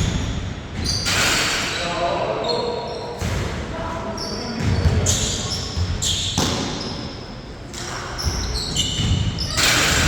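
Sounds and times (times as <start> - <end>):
sneakers squeaking on floor: 0.0 - 1.8, 2.4 - 10.0
basketball bouncing on court: 4.5 - 6.9.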